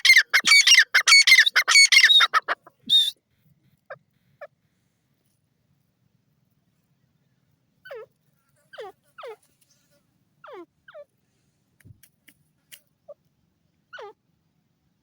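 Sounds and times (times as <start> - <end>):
francolin calling: 0.0 - 3.1.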